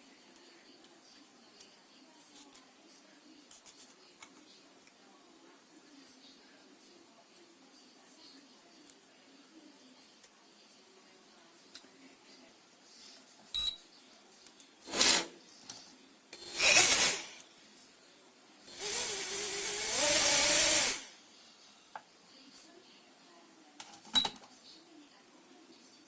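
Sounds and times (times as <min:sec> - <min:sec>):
tool clicks and rasping: 0:16.4 - 0:17.3
small electric motor whirring: 0:16.4 - 0:17.4, 0:18.7 - 0:21.1.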